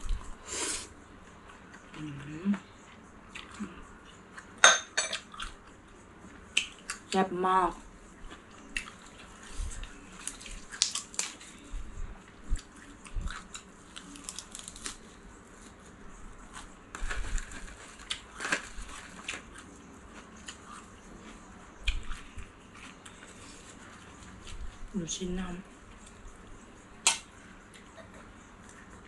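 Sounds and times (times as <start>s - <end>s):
chewing and crunching lettuce: 1.2s - 25.0s
dried seaweed sheet crinkling: 13.9s - 15.8s, 16.5s - 19.7s.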